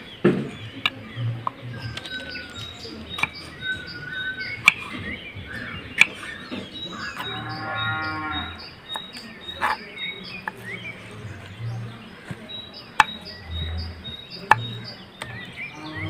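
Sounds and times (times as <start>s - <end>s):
repeating high chirp: 1.6s - 16.0s
animal call: 6.9s - 8.7s.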